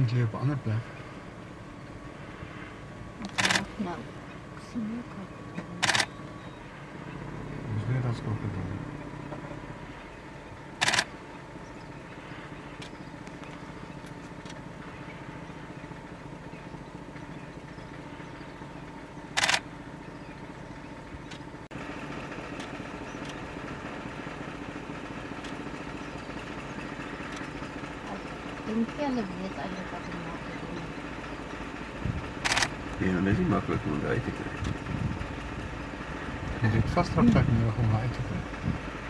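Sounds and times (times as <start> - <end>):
vehicle engine idling: 0.0 - 39.0.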